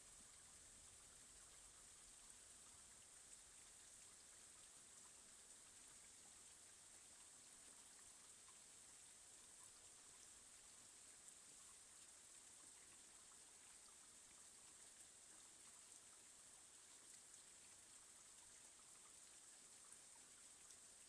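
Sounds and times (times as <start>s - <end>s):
faint rain: 0.0s - 21.0s.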